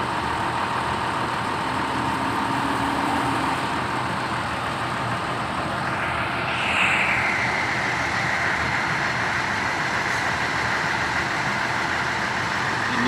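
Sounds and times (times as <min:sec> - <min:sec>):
bus engine running: 0:00.0 - 0:13.0
high whine: 0:03.7 - 0:13.0.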